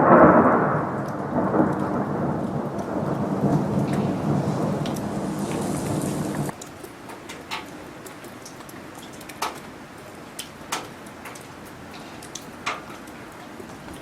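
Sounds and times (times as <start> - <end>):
thunder rumble: 0.0 - 6.5
hiss of falling precipitation: 0.0 - 14.0.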